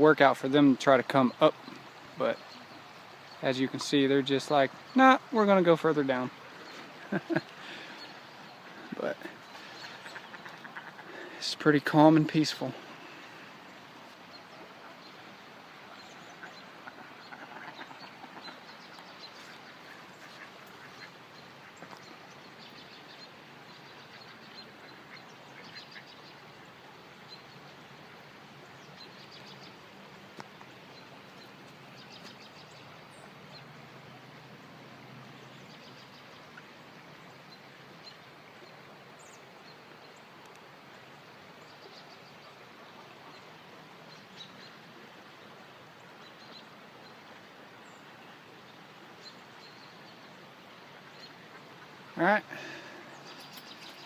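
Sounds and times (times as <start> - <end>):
creek water rushing: 0.0 - 54.0
ducks quacking: 4.9 - 13.6, 15.8 - 22.0.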